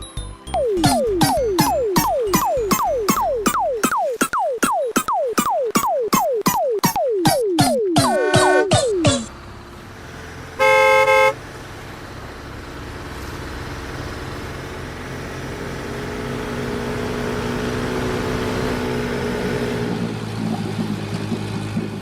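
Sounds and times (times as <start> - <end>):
cartoon vehicle motor hum: 0.5 - 10.0.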